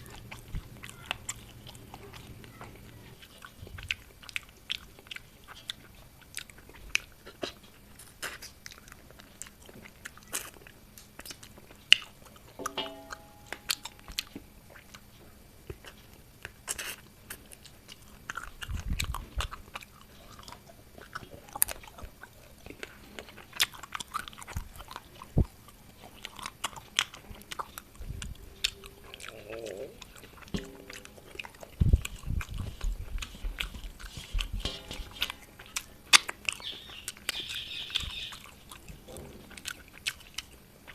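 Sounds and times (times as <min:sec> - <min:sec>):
person chewing and crunching: 0:00.0 - 0:40.9
mouth clicks and smacks: 0:13.5 - 0:40.9.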